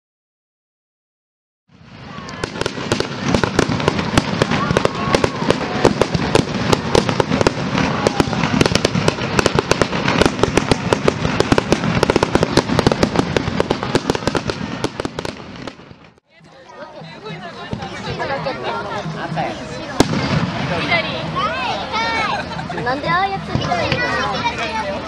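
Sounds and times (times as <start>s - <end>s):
fireworks bangs and crackles: 1.7s - 16.2s, 17.5s - 18.3s, 19.3s - 22.5s, 23.2s - 24.8s.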